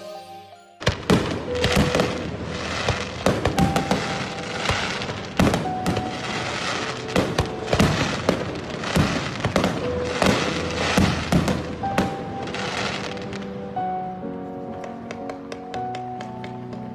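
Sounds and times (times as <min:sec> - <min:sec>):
fireworks bangs and crackles: 0:00.8 - 0:13.7.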